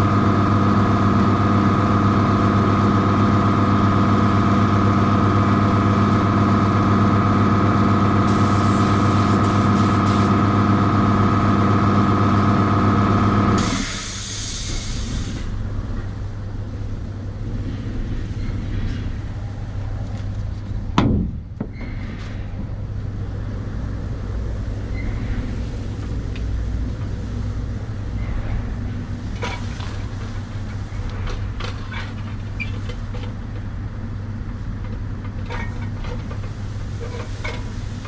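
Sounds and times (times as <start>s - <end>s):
air compressor motor running: 0.0s - 15.6s
short hiss of released air: 8.2s - 10.3s, 13.6s - 15.6s.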